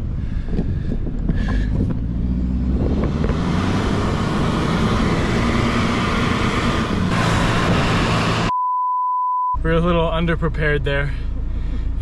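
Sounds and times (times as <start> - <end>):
car engine running: 0.0 - 8.5.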